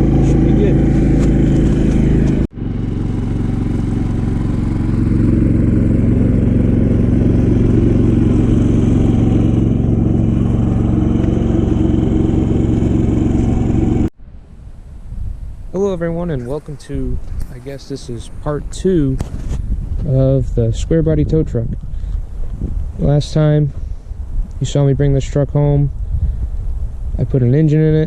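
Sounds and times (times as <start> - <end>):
vehicle engine running: 0.0 - 14.1.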